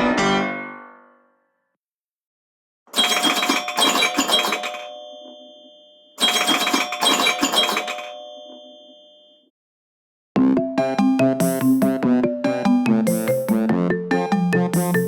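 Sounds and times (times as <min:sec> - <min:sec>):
ringtone bell ringing: 0:02.9 - 0:09.5.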